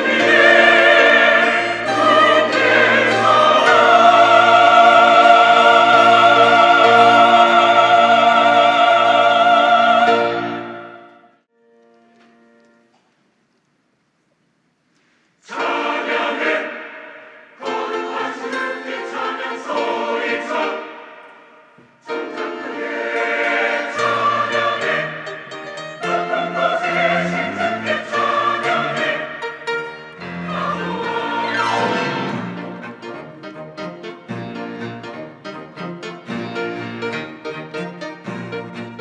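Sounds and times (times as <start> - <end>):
church choir singing: 0.0 - 11.5, 15.4 - 39.0.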